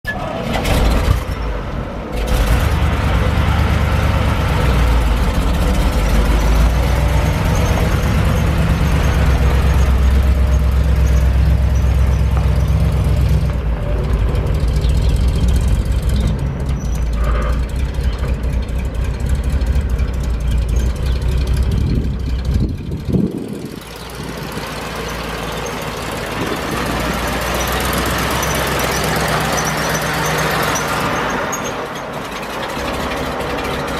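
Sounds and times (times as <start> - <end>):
truck engine rumbling: 0.0 - 33.9.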